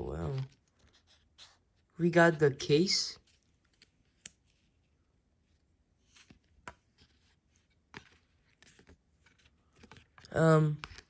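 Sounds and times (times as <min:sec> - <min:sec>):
faint clicks of plastic handling: 0:03.2 - 0:04.8, 0:05.5 - 0:11.0.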